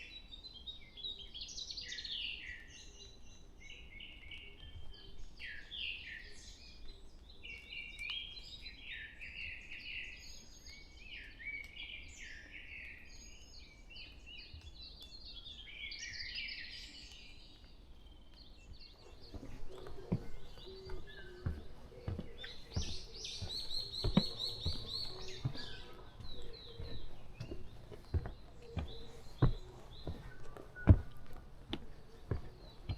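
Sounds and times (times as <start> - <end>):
birds singing: 0.0 - 32.9
footsteps on trail: 18.6 - 32.9.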